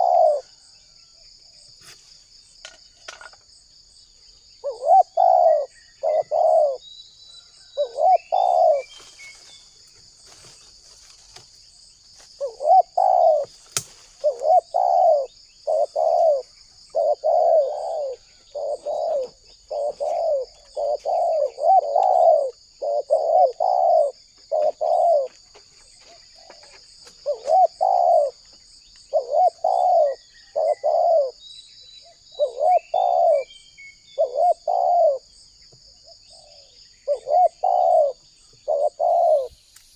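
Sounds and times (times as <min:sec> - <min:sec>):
dove cooing: 0:00.0 - 0:00.6, 0:04.6 - 0:06.8, 0:07.7 - 0:09.0, 0:12.4 - 0:13.6, 0:14.2 - 0:25.4, 0:26.0 - 0:28.4, 0:29.1 - 0:31.4, 0:32.0 - 0:33.5, 0:34.1 - 0:35.4, 0:36.3 - 0:39.6
small birds chirping: 0:00.0 - 0:39.9
high insect buzz: 0:08.0 - 0:25.4.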